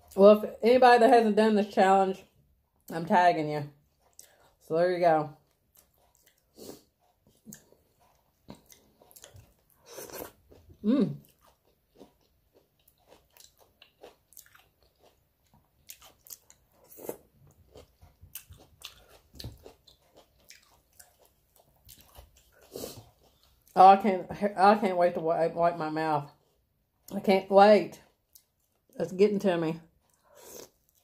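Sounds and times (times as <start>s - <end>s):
person chewing food: 3.8s - 4.7s, 5.3s - 23.8s, 26.2s - 27.2s, 27.9s - 29.0s, 29.9s - 31.0s
person humming: 10.8s - 11.2s.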